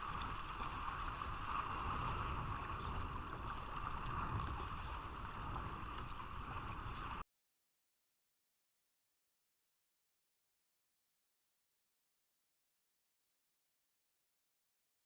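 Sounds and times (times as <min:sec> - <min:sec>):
sea water noise: 0:00.0 - 0:07.2
wind on microphone: 0:00.0 - 0:07.2.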